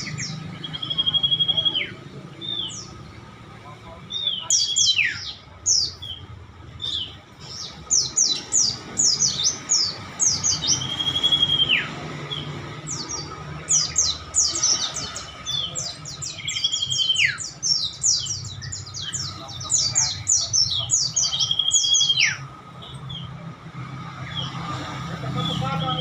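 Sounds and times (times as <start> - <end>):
songbirds chirping chorus: 0.0 - 26.0.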